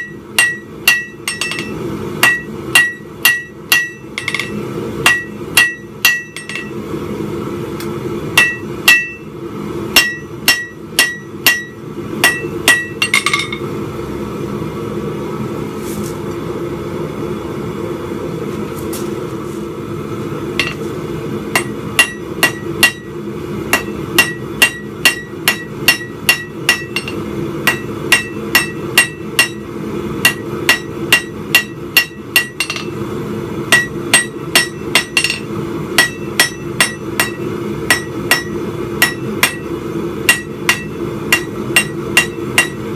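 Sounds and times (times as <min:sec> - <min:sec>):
hammer striking steel on anvil: 0:00.0 - 0:06.8, 0:08.4 - 0:09.3, 0:10.0 - 0:13.7, 0:20.6 - 0:20.9, 0:21.5 - 0:33.0, 0:33.7 - 0:42.9
steady low hum: 0:00.0 - 0:42.9.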